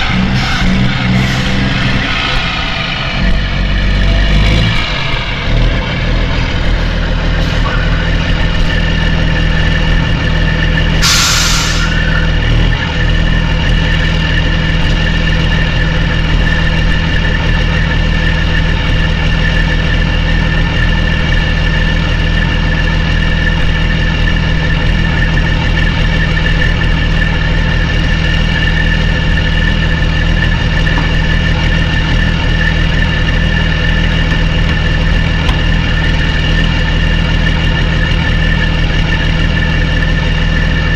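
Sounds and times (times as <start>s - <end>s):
diesel truck engine idling: 0.0s - 40.9s
short air hiss: 11.0s - 12.0s.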